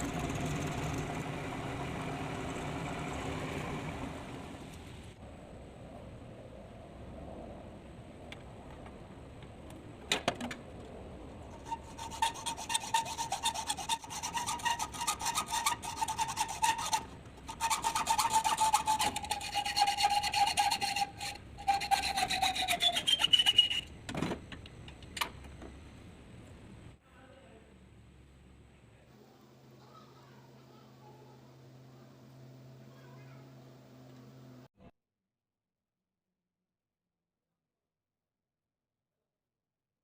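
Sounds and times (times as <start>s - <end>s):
machine whine: 0.0s - 5.2s
tool rasping metal: 11.5s - 23.9s.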